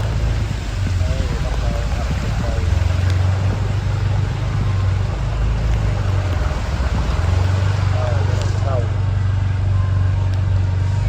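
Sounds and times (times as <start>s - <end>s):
vehicle engine humming: 0.0s - 11.0s
wind and rain: 0.0s - 11.0s.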